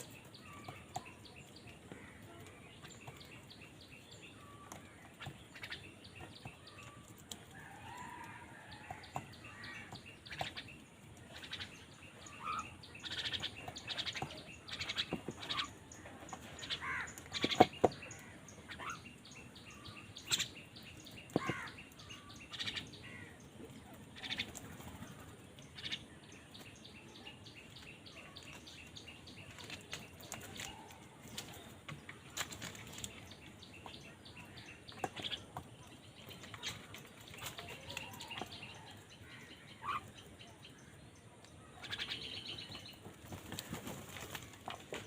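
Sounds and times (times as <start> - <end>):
crows cawing: 16.8 - 17.2, 21.4 - 21.8.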